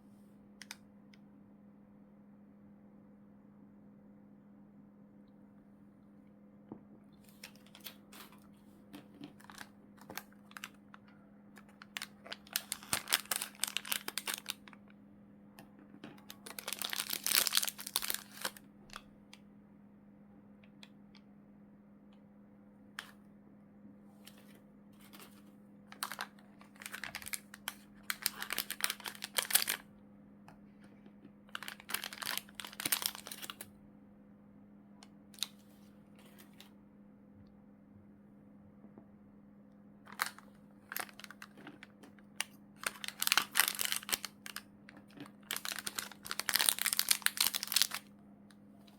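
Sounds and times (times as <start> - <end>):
plastic packaging crinkling: 7.3 - 10.8, 11.6 - 14.8, 16.2 - 19.0, 24.3 - 29.8, 31.5 - 33.7, 35.4 - 36.6, 40.1 - 48.1.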